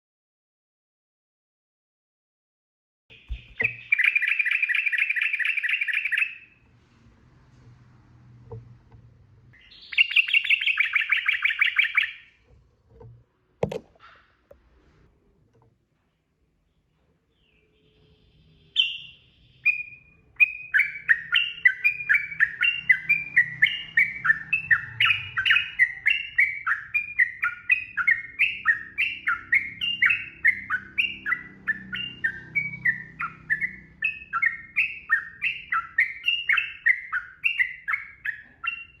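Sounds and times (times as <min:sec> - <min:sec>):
bulbul singing falling notes: 0:03.1 - 0:06.2.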